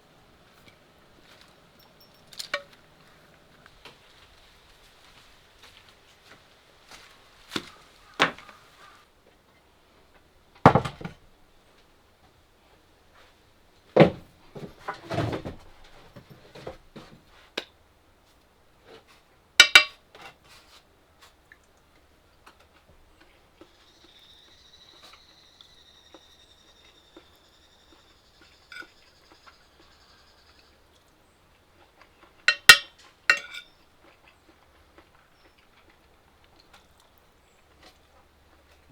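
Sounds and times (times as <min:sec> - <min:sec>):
faint high steady tone: 0:00.0 - 0:03.7
dishes and utensils clinking: 0:00.4 - 0:04.0, 0:19.6 - 0:19.9, 0:32.5 - 0:33.7.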